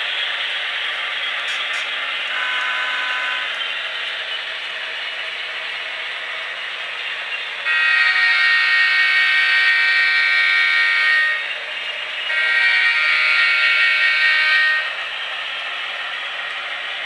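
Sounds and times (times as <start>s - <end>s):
model train motors and wheels: 0.0s - 17.0s
model train air horn: 2.3s - 3.6s, 7.6s - 11.5s, 12.3s - 15.1s.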